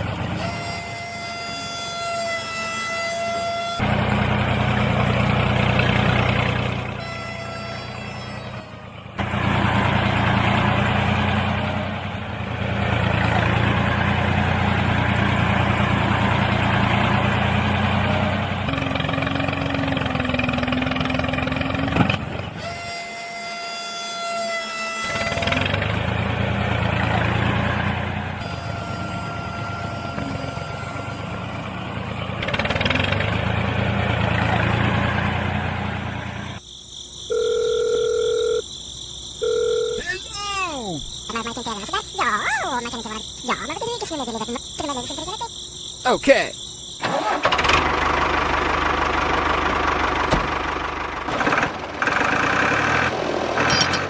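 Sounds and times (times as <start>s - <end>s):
tractor motor running: 3.8s - 22.8s, 25.0s - 36.6s, 47.0s - 54.0s.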